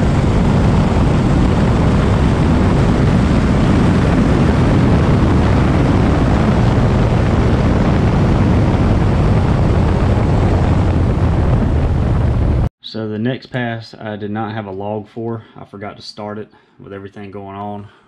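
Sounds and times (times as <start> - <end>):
wind on microphone: 0.0 - 12.7.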